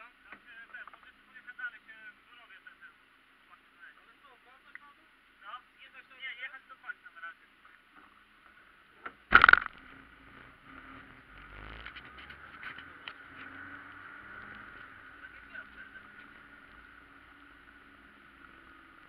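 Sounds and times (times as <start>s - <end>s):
car engine running: 8.7s - 19.0s
loud knock: 9.3s - 9.7s.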